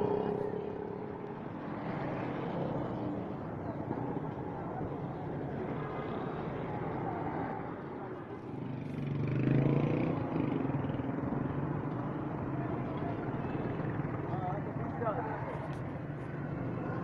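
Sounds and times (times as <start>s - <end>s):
people talking: 0.0s - 2.0s
steady traffic: 0.0s - 17.0s.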